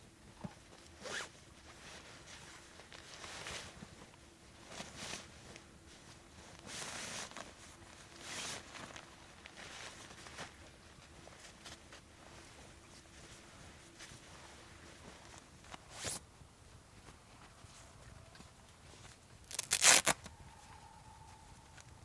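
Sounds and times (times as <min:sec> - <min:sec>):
zipper pulled: 0:01.0 - 0:01.3, 0:19.5 - 0:20.2.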